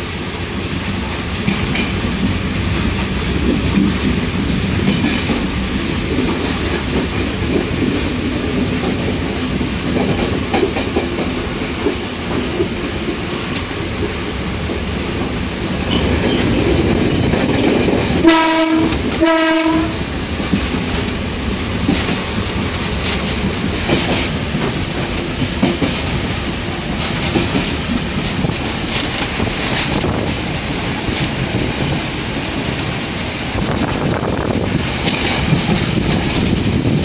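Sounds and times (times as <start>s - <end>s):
train rumble and wheel clicking: 0.0s - 37.0s
train horn blasts: 18.2s - 20.1s.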